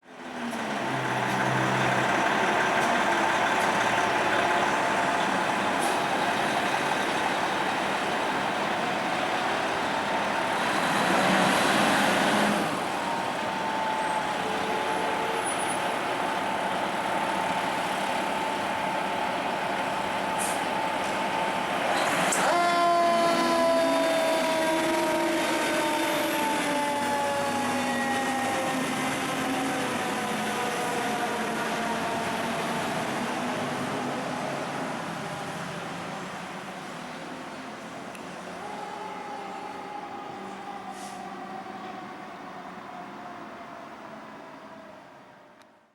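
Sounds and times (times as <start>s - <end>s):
fire engine diesel engine: 0.0s - 45.9s
siren tones: 12.4s - 16.6s, 22.4s - 32.5s.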